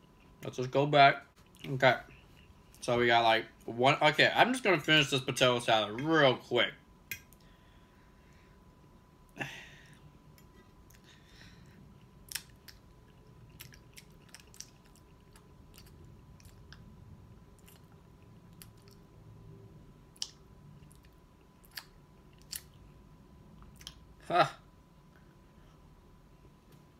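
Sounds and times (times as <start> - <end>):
person chewing: 10.3 - 16.9, 17.5 - 19.1, 20.1 - 23.0, 23.6 - 24.1.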